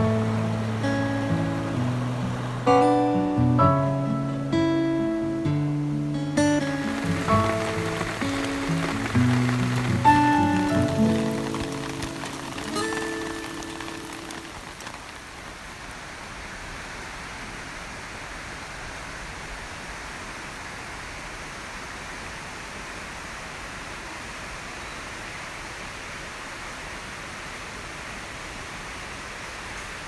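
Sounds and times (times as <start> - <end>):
music: 0.0 - 14.3
steady rain hiss: 0.0 - 30.0.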